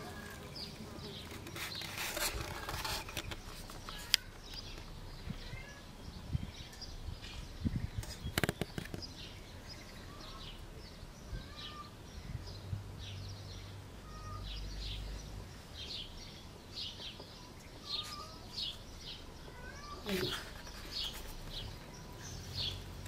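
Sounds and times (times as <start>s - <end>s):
small birds chirping: 0.0s - 23.0s
cluster of clicks: 8.0s - 9.1s.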